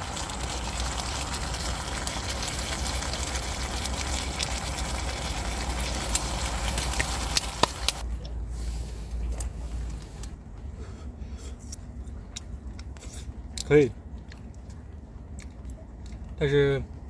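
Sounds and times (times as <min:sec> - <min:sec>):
vegetables sizzling in a frying pan: 0:00.0 - 0:08.0
low steady hum: 0:00.0 - 0:17.0
oil spitting pops: 0:00.1 - 0:08.0.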